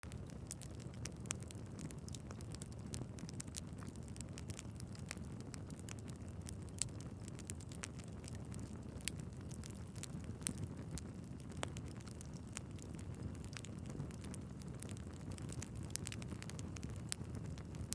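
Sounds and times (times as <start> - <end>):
low rumble of flames: 0.0 - 17.9
wood fire crackling and popping: 0.0 - 17.9.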